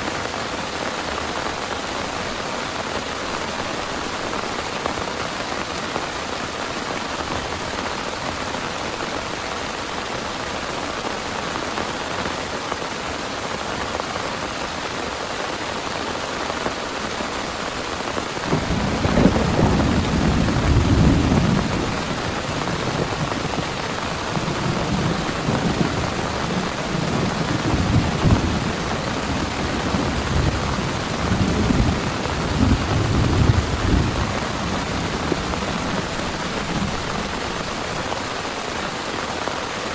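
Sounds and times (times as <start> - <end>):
heavy rain falling: 0.0 - 39.9
thunder rumbling: 18.4 - 38.7.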